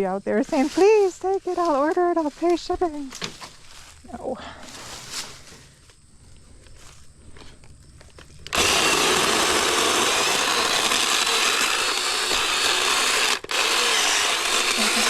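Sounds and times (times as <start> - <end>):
cordless saw cutting branch: 8.5 - 15.0.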